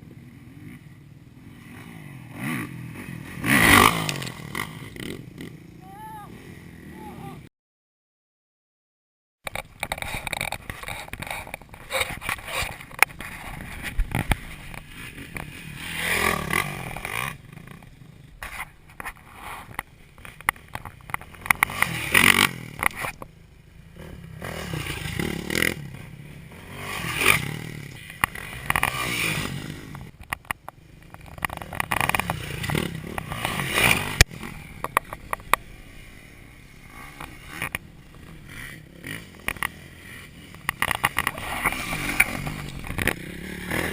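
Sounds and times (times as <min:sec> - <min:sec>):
dirt bike engine revving: 0:00.2 - 0:07.4, 0:09.8 - 0:18.5, 0:19.1 - 0:30.2, 0:30.8 - 0:43.9
sharp knocks and scrapes: 0:09.5 - 0:15.5, 0:18.4 - 0:23.2.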